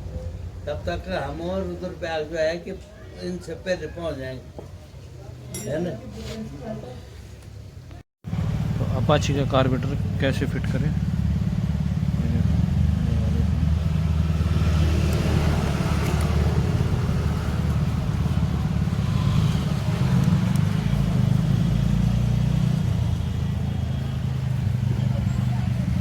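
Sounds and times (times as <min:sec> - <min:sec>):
vehicle engine running: 0:08.2 - 0:26.0.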